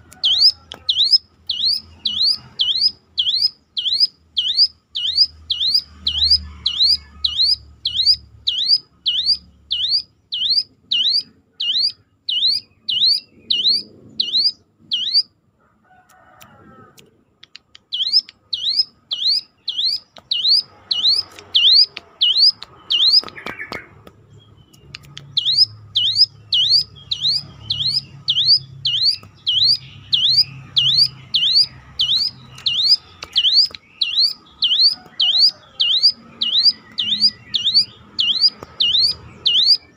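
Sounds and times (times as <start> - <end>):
bird calling siren-like note: 0.1 - 15.3, 18.0 - 23.6, 25.4 - 39.9.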